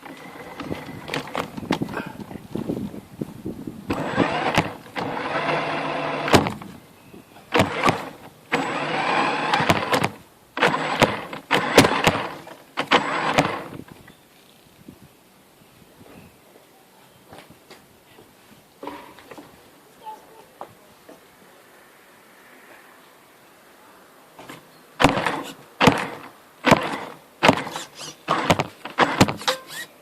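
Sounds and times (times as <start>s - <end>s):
electric motor whining: 3.9s - 6.7s, 7.5s - 13.8s.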